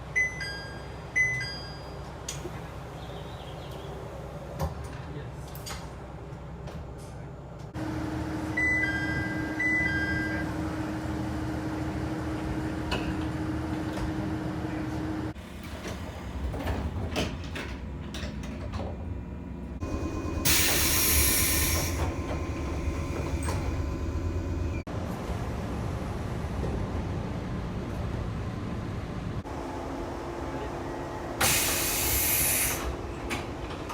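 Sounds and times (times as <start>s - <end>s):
loud hiss of air: 19.9s - 24.6s, 31.4s - 33.0s.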